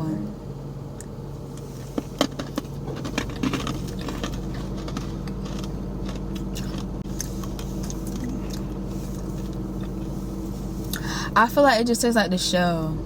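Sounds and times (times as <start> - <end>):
steady low hum: 0.0 - 13.0
candy crunching while chewed: 2.3 - 10.1.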